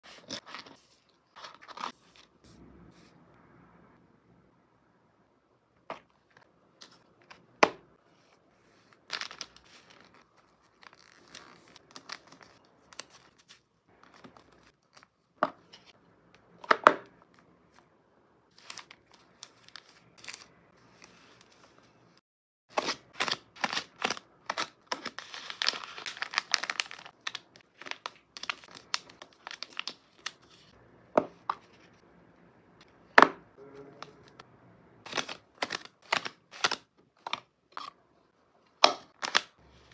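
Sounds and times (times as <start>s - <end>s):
packing materials crinkling: 8.9s - 15.1s, 22.8s - 30.7s, 35.0s - 37.4s, 39.1s - 39.9s.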